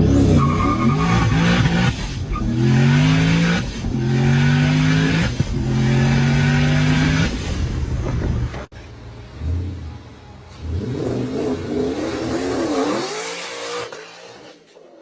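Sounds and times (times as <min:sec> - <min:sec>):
car engine accelerating through gears: 0:00.0 - 0:08.7.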